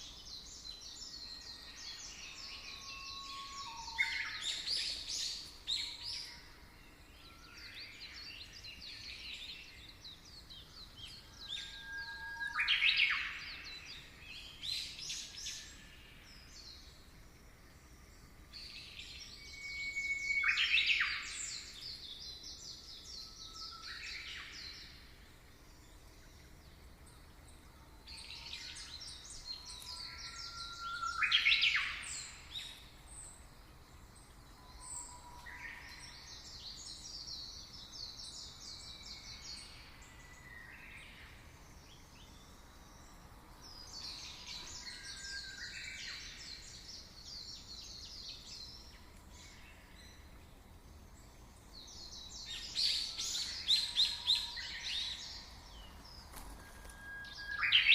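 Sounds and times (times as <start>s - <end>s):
faint steady hiss: 0.0s - 57.9s
songbirds trilling: 18.6s - 57.9s.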